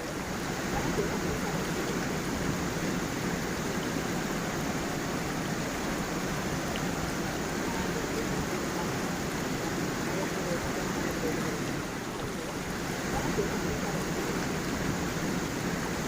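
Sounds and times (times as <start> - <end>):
water rushing over stones: 0.0 - 16.0.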